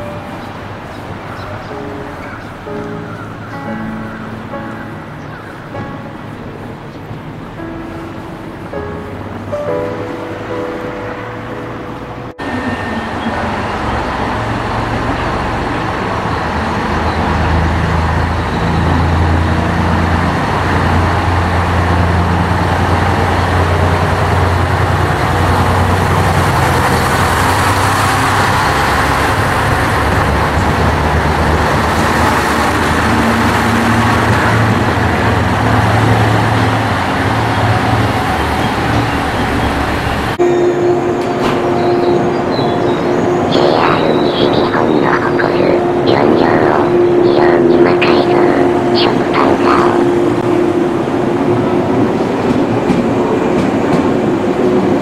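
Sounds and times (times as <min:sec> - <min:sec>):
train engine hum and rumble: 0:00.0 - 0:55.0
steady tone: 0:17.4 - 0:52.3.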